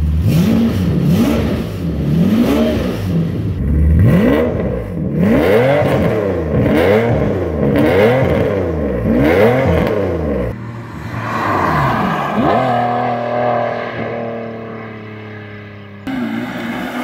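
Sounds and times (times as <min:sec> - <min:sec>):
car engine revving: 0:00.0 - 0:17.0
car accelerating past: 0:09.4 - 0:17.0.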